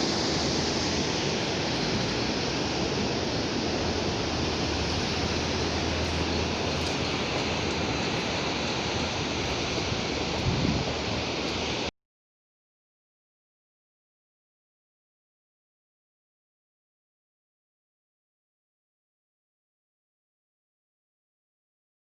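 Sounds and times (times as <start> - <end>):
sea surf washing ashore: 0.0 - 11.9.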